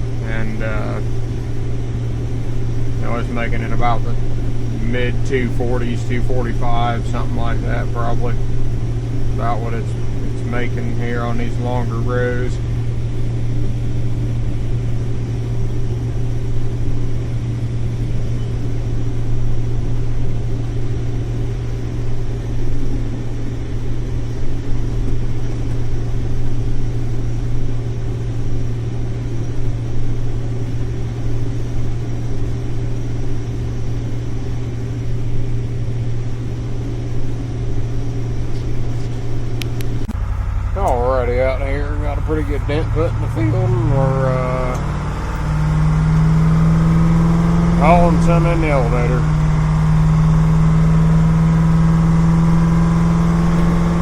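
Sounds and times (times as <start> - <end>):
combine harvester drone: 0.0 - 54.0.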